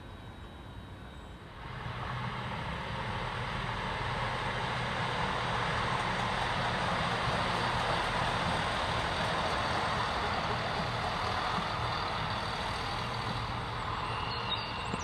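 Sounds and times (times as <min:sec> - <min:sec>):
diesel train approaching: 0:00.0 - 0:15.0.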